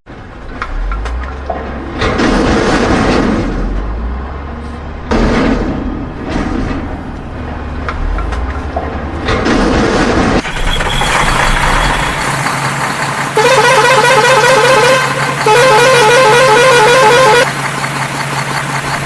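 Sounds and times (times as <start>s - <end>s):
warbling vehicle horn blasts: 13.4s - 17.5s.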